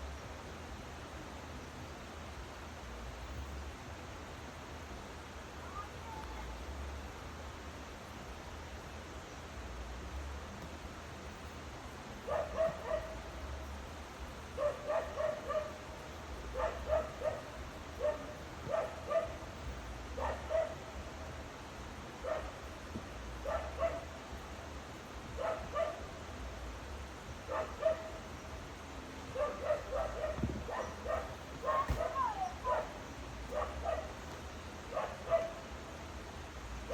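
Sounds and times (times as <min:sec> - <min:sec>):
dog barking: 0:12.3 - 0:13.2, 0:14.6 - 0:15.8, 0:16.5 - 0:19.4, 0:20.2 - 0:20.8, 0:22.2 - 0:22.6, 0:23.4 - 0:24.1, 0:25.4 - 0:26.1, 0:27.5 - 0:28.3, 0:29.3 - 0:34.2, 0:34.9 - 0:35.6.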